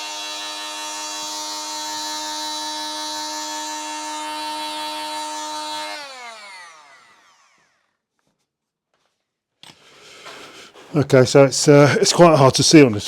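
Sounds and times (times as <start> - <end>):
power tool motor whining: 0.0 - 8.0.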